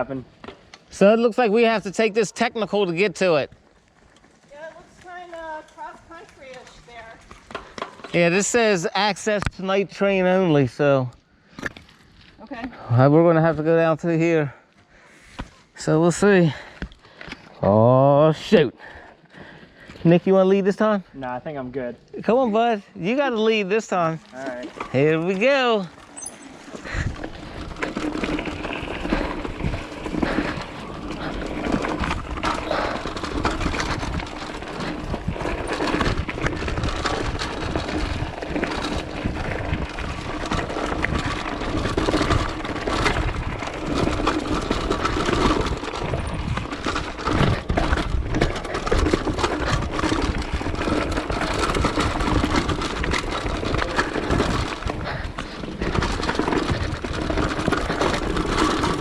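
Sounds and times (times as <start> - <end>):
tyres crunching over rocks: 24.0 - 59.0.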